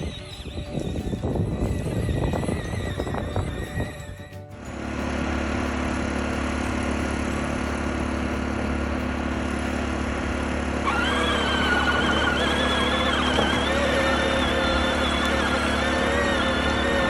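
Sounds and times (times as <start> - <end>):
wavering high tone: 0.0 - 5.2, 10.7 - 17.0
electric toy motor whirring: 6.6 - 17.0.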